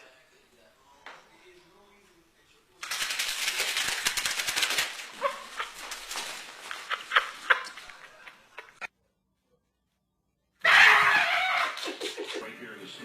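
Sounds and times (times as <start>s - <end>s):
pet animal sounds: 10.6s - 11.8s.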